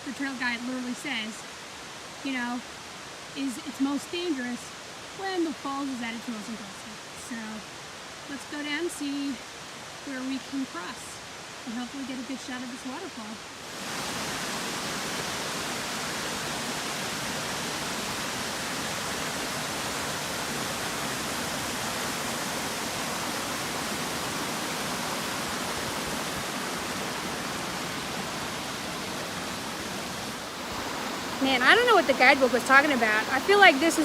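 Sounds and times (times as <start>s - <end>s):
waterfall rushing: 9.6s - 34.0s.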